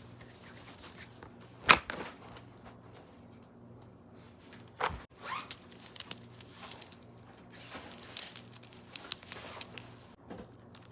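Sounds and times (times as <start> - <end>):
handling clicks and rustling: 4.6 - 10.9.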